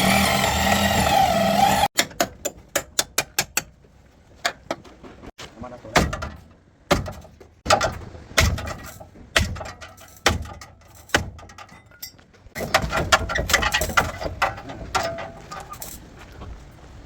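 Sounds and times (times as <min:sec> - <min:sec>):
sharp metallic knocks: 0:05.9 - 0:15.9.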